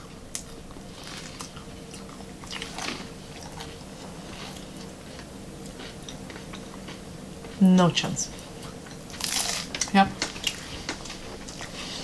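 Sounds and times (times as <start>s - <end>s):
faint steady hum: 0.0s - 12.0s
chewing crusty bread: 0.3s - 7.6s.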